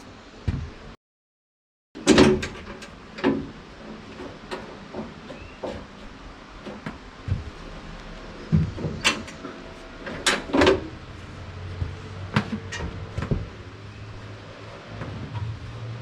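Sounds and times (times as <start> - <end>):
metal parts clunking and scraping: 2.0 - 7.8, 8.4 - 11.0.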